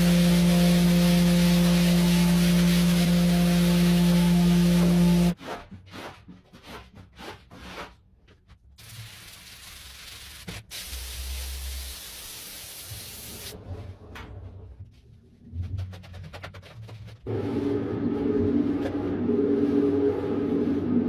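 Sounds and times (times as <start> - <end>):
brush scrubbing carpet: 0.0 - 5.4
spraying hiss: 0.0 - 5.4, 9.0 - 13.6.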